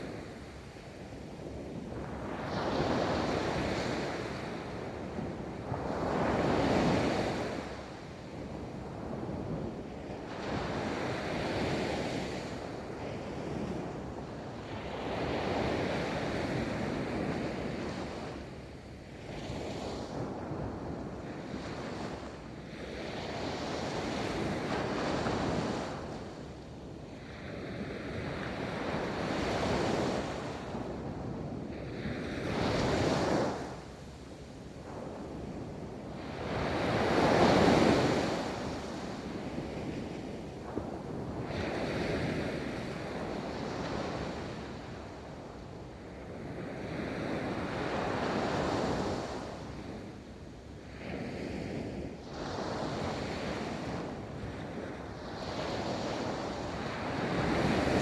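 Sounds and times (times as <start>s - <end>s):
wind noise on microphone: 50.9s - 58.0s.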